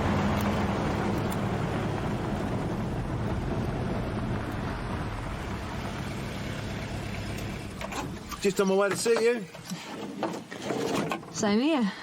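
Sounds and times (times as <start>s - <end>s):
vehicle engine humming: 0.0s - 9.6s
road and wind noise: 0.0s - 12.0s.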